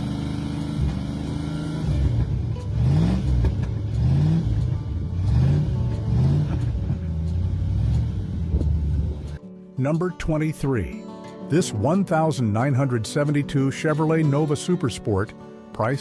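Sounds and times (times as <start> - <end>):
pickup engine idling and revving: 0.0 - 9.4.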